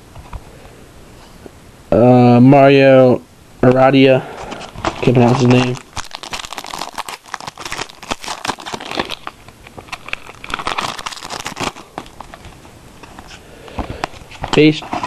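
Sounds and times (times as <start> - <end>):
cards being handled: 4.4 - 15.0
wrapper crinkling: 4.4 - 15.0.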